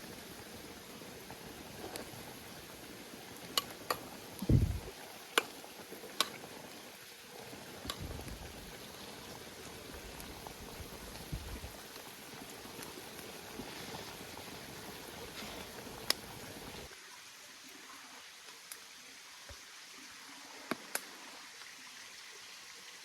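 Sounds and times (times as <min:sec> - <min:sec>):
pot of food boiling: 0:00.0 - 0:17.0
dull thump: 0:04.4 - 0:04.9.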